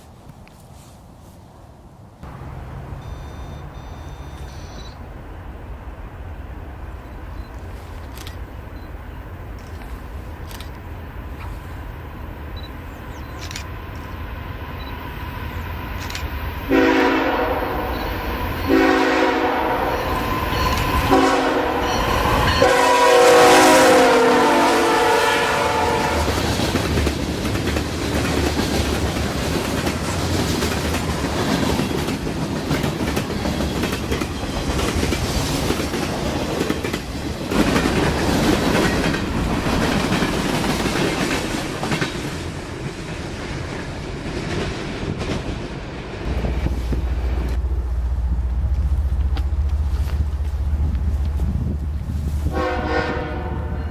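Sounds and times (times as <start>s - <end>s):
locomotive rumble: 2.2s - 53.9s
train air horn blasts: 16.7s - 26.4s, 52.5s - 53.9s
wheels clattering on rail: 26.1s - 52.7s.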